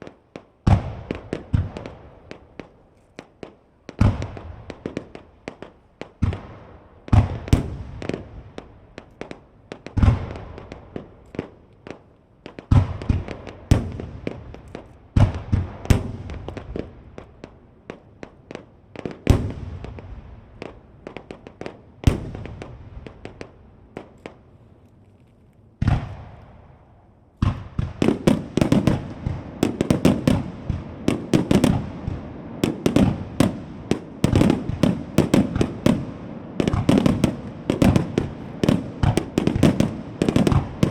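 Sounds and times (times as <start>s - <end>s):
firework shells bursting: 27.4s - 40.9s.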